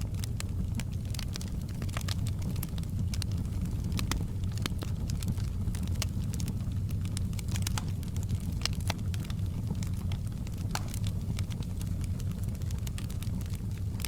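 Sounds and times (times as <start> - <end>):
low rumble of flames: 0.0 - 14.0
wood fire popping and snapping: 0.0 - 14.0.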